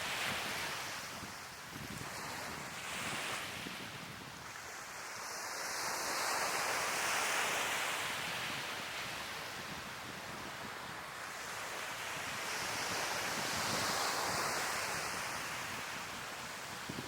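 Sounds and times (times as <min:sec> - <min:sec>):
sea waves washing onto shore: 0:00.0 - 0:17.0.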